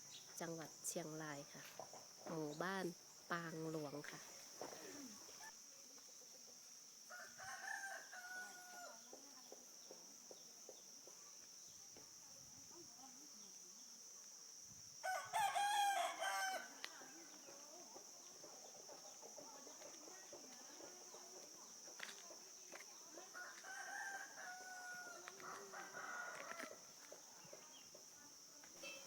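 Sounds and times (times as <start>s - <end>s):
distant roosters crowing: 7.1s - 9.2s, 15.0s - 17.4s, 23.1s - 27.9s.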